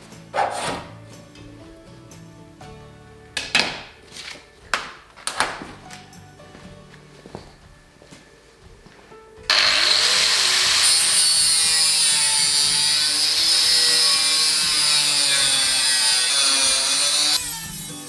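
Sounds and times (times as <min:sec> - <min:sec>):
power tool cutting sheet steel: 0:09.5 - 0:18.0.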